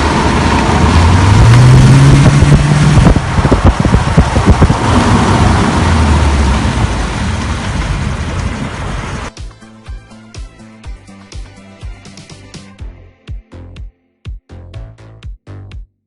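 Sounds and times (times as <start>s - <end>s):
car engine revving: 0.0s - 9.3s
road and wind noise: 0.0s - 9.4s.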